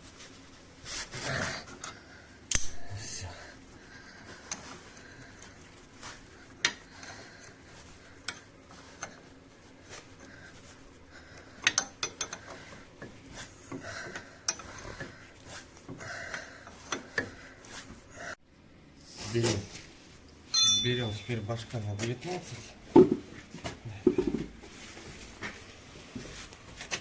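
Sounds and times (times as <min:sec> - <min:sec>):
metal hand tools clinking: 0:20.6 - 0:21.4.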